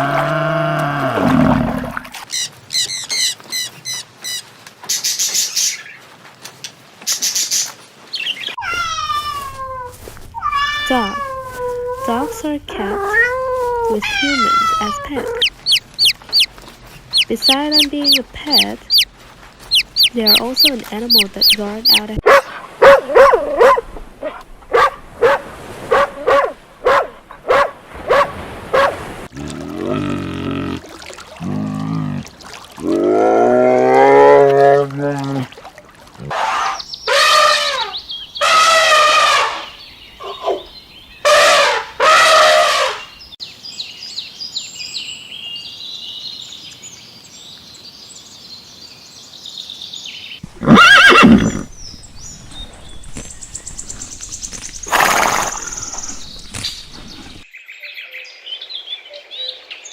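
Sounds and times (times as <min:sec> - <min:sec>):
cat meowing: 0:08.6 - 0:12.0, 0:13.0 - 0:15.5
high chirps: 0:15.4 - 0:22.0
dog barking: 0:22.2 - 0:29.0.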